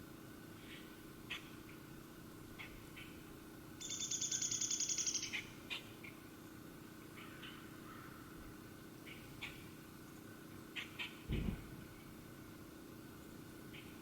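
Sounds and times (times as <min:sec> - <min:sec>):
low background hum: 0:00.0 - 0:14.0
songbird trilling and chirping: 0:03.8 - 0:05.8.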